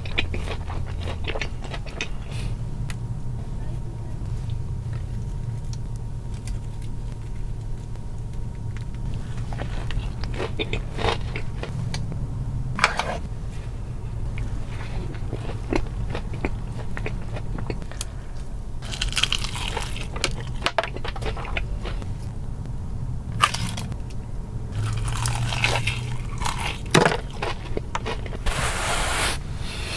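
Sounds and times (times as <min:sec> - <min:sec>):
fried chicken crunching: 0:00.0 - 0:02.6, 0:05.0 - 0:12.4, 0:14.2 - 0:22.4, 0:23.4 - 0:28.8
low steady hum: 0:00.0 - 0:29.9.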